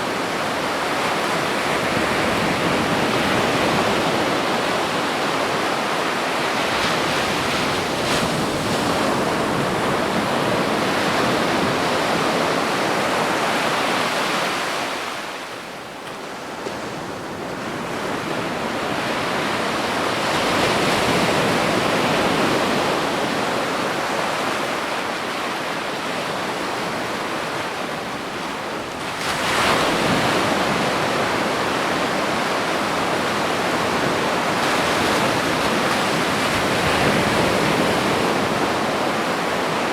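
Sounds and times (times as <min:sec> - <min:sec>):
ocean surf washing onto beach: 0:16.3 - 0:39.9.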